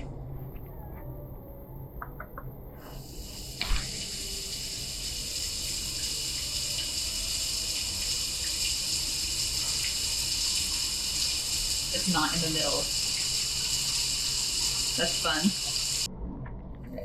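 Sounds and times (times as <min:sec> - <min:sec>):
shower spraying water: 0:02.8 - 0:16.1.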